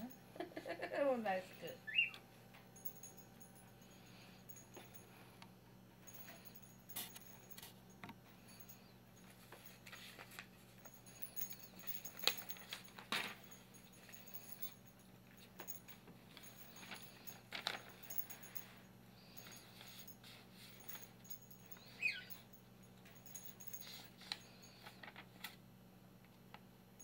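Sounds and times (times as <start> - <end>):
metal bell toy jingling: 10.9 - 12.8, 15.6 - 22.5.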